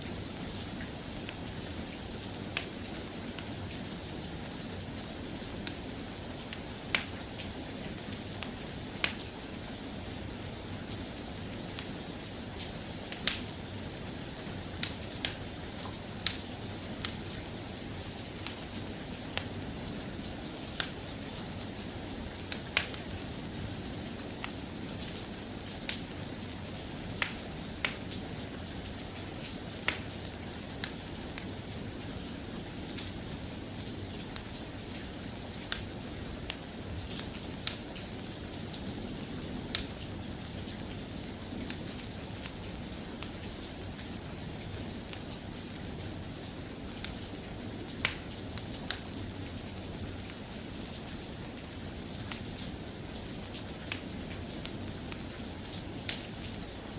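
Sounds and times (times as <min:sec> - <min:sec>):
steady rain: 0:00.0 - 0:56.9.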